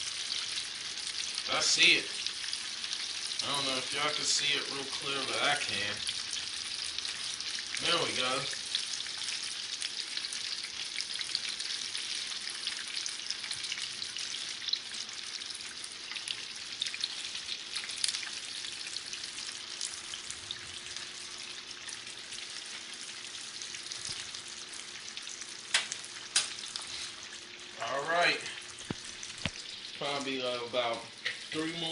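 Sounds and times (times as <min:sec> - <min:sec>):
chicken sizzling in oil: 0:00.0 - 0:31.9.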